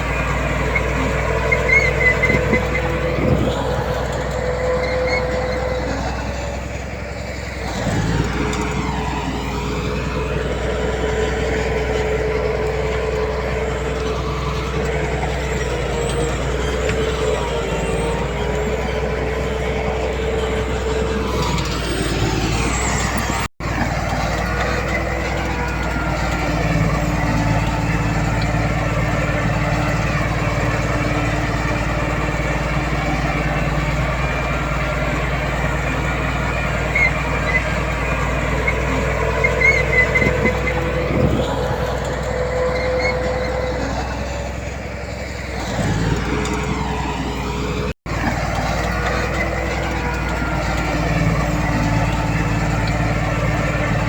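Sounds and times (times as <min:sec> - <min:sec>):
heavy diesel machinery running: 0:00.0 - 0:54.0
short high squeaks: 0:00.4 - 0:06.6, 0:20.2 - 0:23.5, 0:36.7 - 0:44.6.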